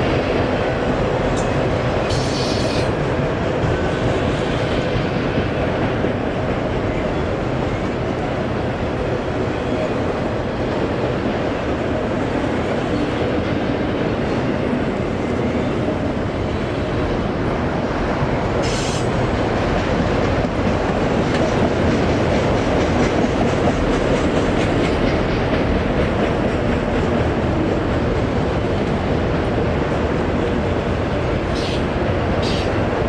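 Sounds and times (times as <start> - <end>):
freight train wheels clattering on rail: 0.0 - 33.0
high wheel squeal: 2.1 - 2.9, 32.4 - 32.8.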